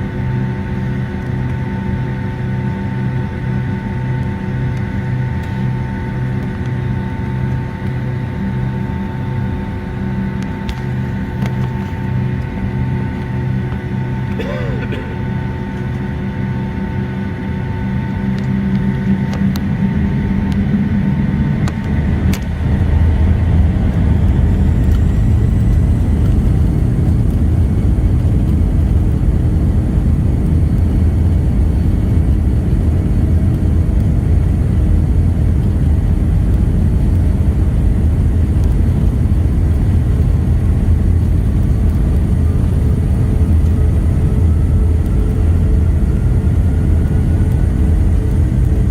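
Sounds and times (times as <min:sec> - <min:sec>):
jet engines rumbling: 0:00.0 - 0:48.9.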